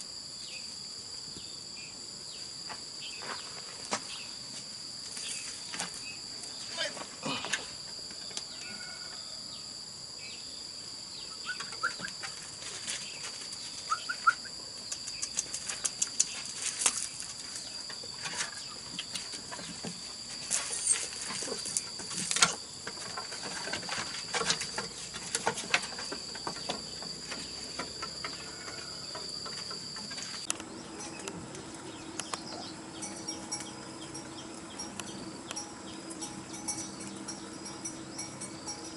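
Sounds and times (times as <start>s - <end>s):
insects droning: 0.0s - 38.9s
low steady hum: 0.0s - 38.9s.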